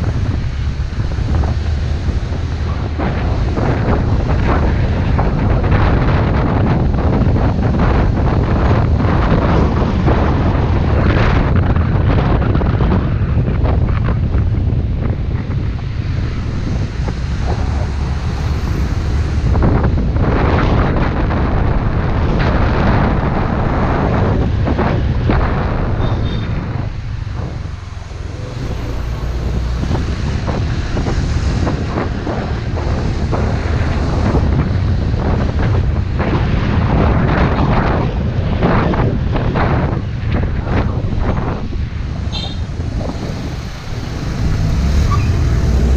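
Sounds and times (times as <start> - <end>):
motorbike engine and road rumble: 0.0 - 45.9
wind buffeting microphone: 0.0 - 45.9.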